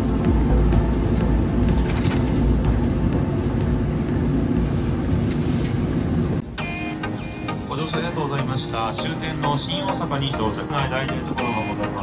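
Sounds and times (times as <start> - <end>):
train interior rumble and rushing: 0.0 - 6.6.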